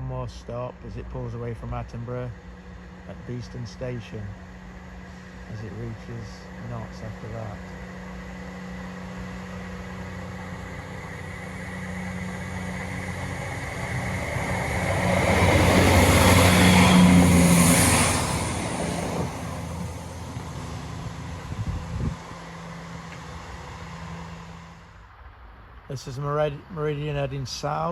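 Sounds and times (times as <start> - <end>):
diesel train passing: 0.0 - 27.9.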